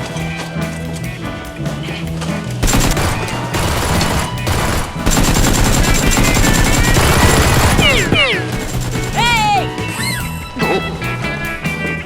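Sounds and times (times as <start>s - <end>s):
background music: 0.0s - 12.0s
automatic gunfire: 2.6s - 9.2s.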